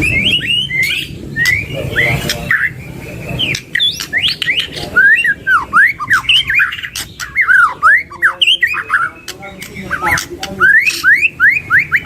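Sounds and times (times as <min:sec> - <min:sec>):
bird whistled song: 0:00.0 - 0:12.0
bird clicking chips: 0:06.0 - 0:12.0.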